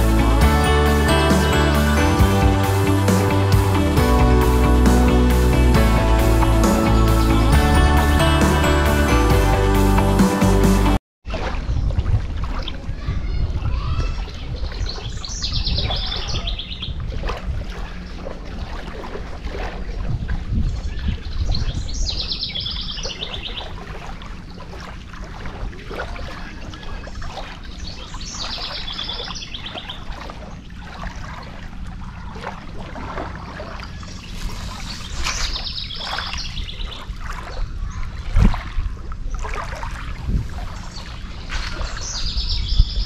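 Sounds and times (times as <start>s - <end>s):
outdoor background noise: 11.2s - 43.0s
songbird trilling: 33.9s - 37.0s, 40.9s - 43.0s.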